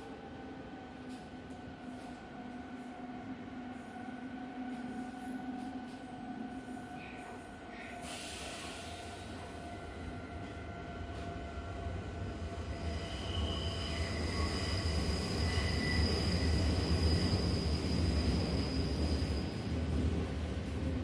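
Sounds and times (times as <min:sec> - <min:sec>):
train rumbling on rails: 0:00.0 - 0:21.0
high-pitched wheel squeal: 0:12.7 - 0:19.6.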